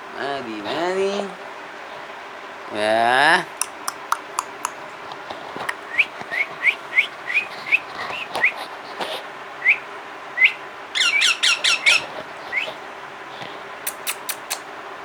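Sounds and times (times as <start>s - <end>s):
parrot chirping: 3.5s - 4.8s, 5.7s - 8.6s, 10.4s - 12.7s, 13.9s - 14.6s.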